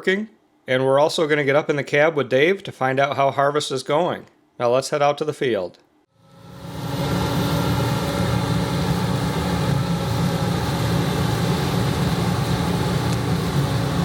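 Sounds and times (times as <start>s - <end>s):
steady whining tones: 6.1s - 14.0s
combine harvester drone: 6.2s - 14.0s.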